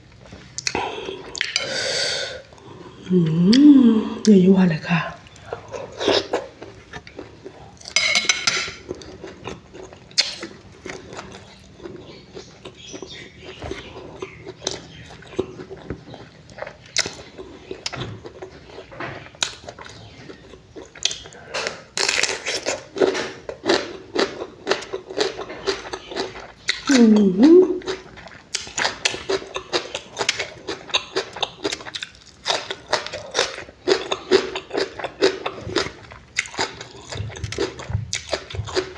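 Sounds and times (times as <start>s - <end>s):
person chewing and smacking: 0.1s - 1.7s, 5.2s - 38.9s
utensils clinking on a dish: 7.9s - 8.9s.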